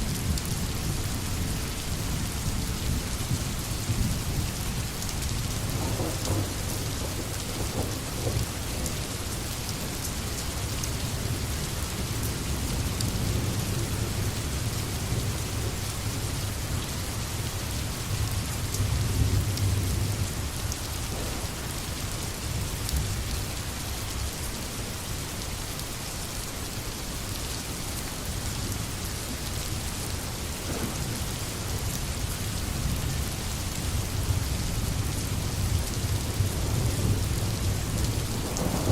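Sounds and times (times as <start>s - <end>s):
heavy rain pattering on leaves: 0.0s - 38.9s
distant thunder rumbling: 5.7s - 8.9s, 21.0s - 22.6s, 30.6s - 31.5s, 36.2s - 38.9s.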